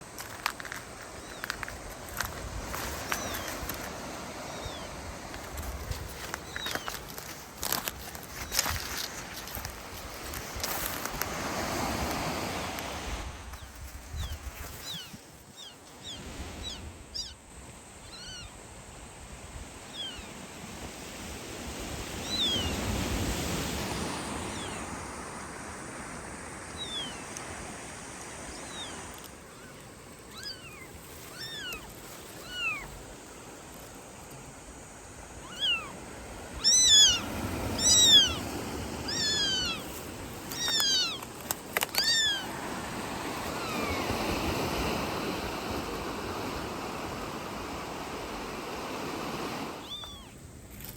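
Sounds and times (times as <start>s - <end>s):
kitten meowing: 30.3s - 32.9s, 35.4s - 35.9s, 36.6s - 38.4s, 39.0s - 39.9s, 40.5s - 41.2s, 41.9s - 42.5s, 49.8s - 50.4s.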